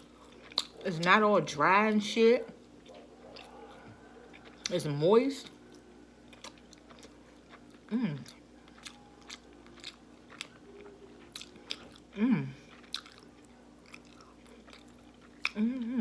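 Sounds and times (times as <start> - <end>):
person chewing: 0.0 - 1.2, 2.5 - 16.0
person humming mm: 7.9 - 8.3, 12.2 - 12.6.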